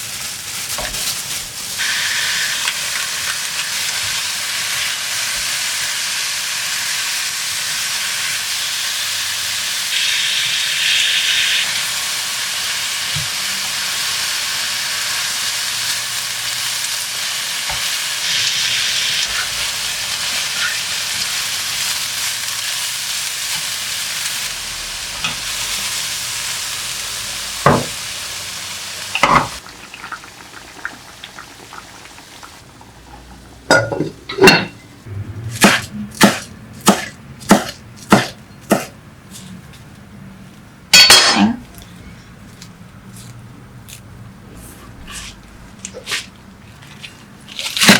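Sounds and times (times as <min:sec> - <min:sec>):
food sizzling in a frying pan: 0:00.0 - 0:34.4
utensils or dishes clacking: 0:33.7 - 0:34.9, 0:41.0 - 0:41.6.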